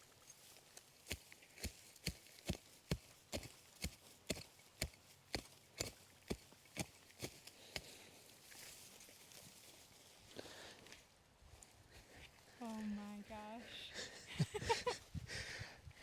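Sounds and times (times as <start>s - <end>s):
digging tool chopping into clay: 1.1s - 8.0s.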